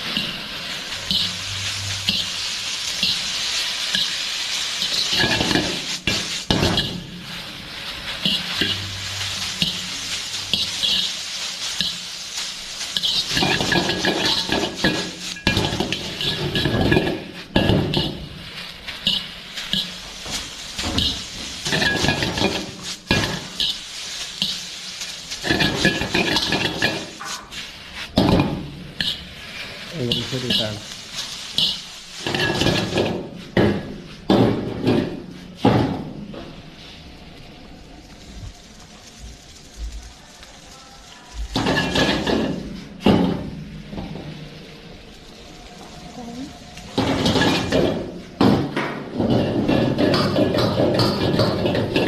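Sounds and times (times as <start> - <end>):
metal ladle scraping a wok: 0.0 - 33.6, 41.6 - 48.3
noodles sizzling in a pan: 0.0 - 52.0.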